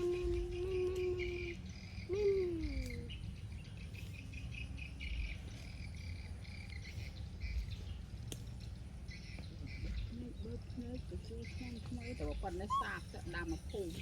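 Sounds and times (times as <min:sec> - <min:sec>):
insect chirping: 0:00.0 - 0:07.7.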